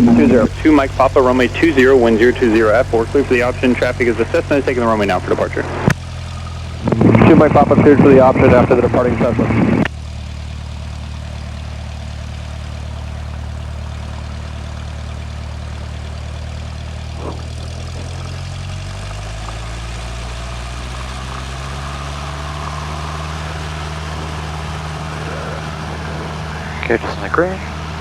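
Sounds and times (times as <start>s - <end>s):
propeller plane engine: 0.0s - 28.0s.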